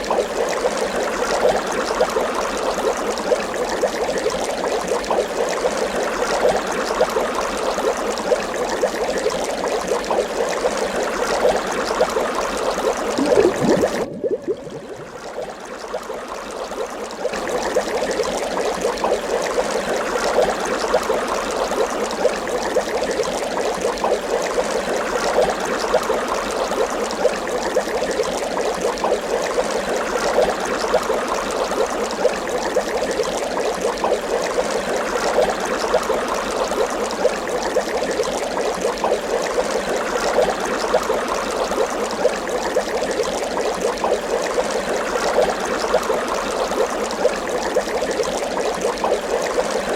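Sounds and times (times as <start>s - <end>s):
water bubbling: 13.0s - 16.8s.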